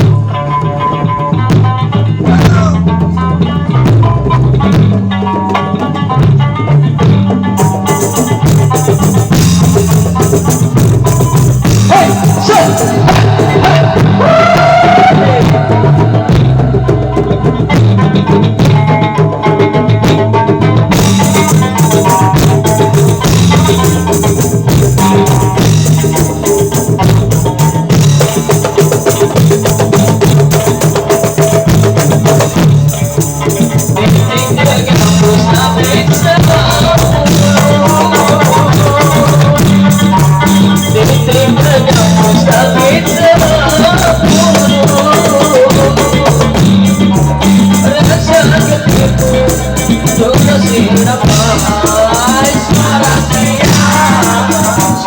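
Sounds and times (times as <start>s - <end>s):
hand drums beating: 0.0s - 55.0s.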